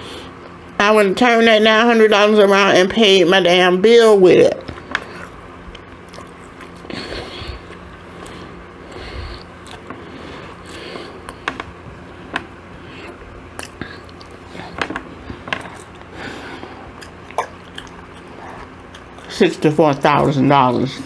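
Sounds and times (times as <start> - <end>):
chewing and biting: 4.7 - 19.3.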